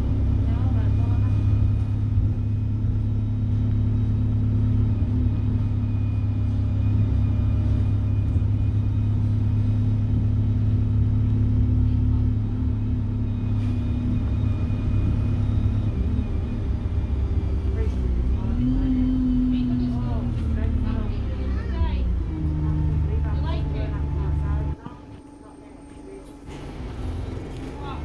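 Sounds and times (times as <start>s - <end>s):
bus diesel engine drone: 0.0s - 28.0s
turbocharger whine: 12.9s - 28.0s.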